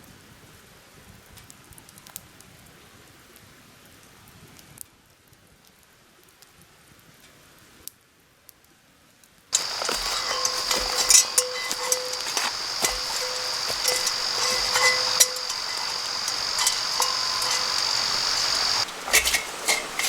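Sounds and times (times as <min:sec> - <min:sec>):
soft patter and light ticks: 0:09.6 - 0:20.0.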